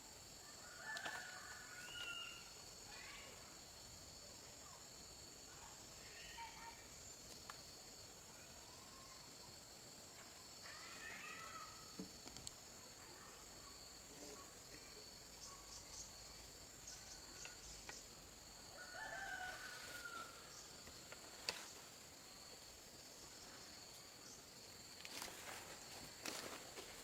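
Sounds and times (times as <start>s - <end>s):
faint rooster crowing: 0.4s - 2.6s, 10.6s - 12.0s, 18.6s - 20.8s
faint clicks: 12.2s - 12.6s.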